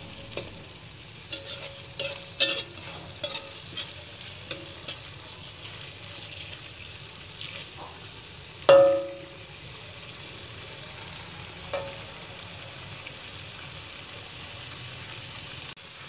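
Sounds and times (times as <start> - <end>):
metal spatula stirring: 0.0 - 7.8
spice paste sizzling in a wok: 0.0 - 16.0
spatula clanging on wok: 1.3 - 5.3, 8.7 - 9.5, 11.7 - 12.2.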